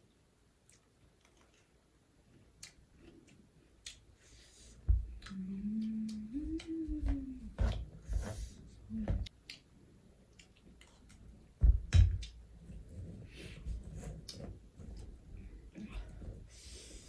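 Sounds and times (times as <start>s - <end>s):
closed-mouth humming: 4.9s - 7.8s.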